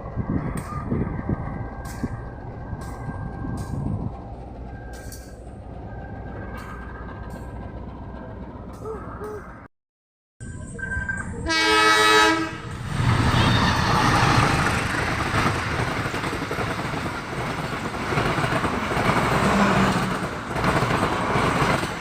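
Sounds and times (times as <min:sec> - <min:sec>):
train passing rumble and clatter: 0:00.0 - 0:09.7, 0:10.4 - 0:22.0
train horn blast: 0:11.4 - 0:12.8.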